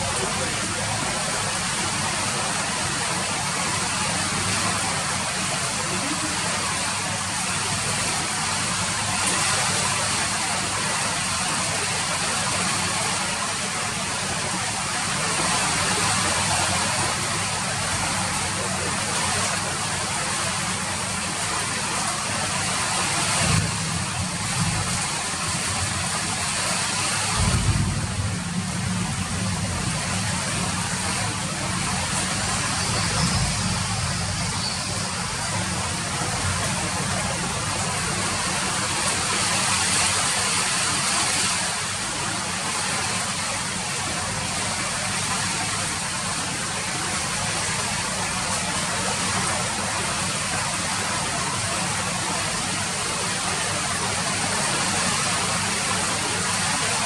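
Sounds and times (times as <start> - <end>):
steady rain hiss: 0.0 - 57.0
low rumble: 27.4 - 34.7.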